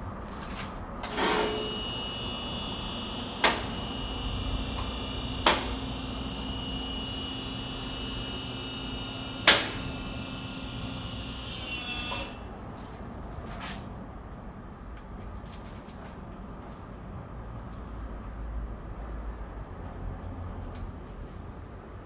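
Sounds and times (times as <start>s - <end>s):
steady hum: 0.0s - 13.2s
sharp metallic knocks: 3.4s - 3.9s, 5.4s - 5.9s, 9.4s - 10.0s.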